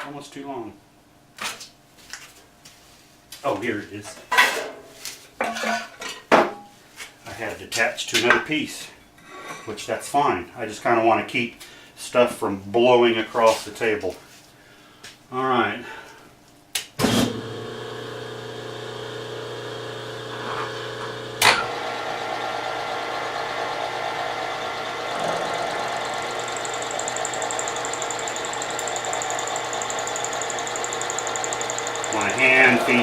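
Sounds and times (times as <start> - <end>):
spindle motor humming: 17.3 - 33.0.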